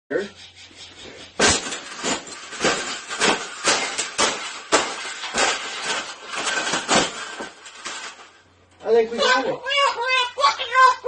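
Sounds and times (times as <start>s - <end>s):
sharp clattering bangs: 1.1s - 8.5s.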